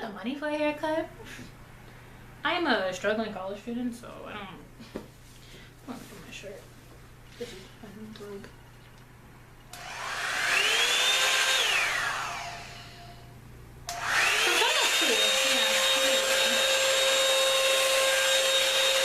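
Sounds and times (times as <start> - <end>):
hot-air brush dryer whining: 9.7 - 19.0.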